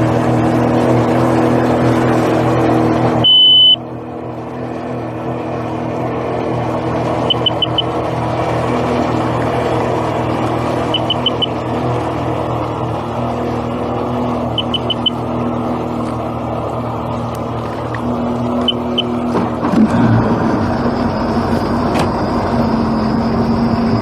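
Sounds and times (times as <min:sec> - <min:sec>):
engine running: 0:00.0 - 0:24.0
quick high-pitched beeps: 0:03.2 - 0:03.8, 0:07.3 - 0:07.9, 0:10.9 - 0:11.5, 0:14.6 - 0:15.2, 0:18.6 - 0:19.2.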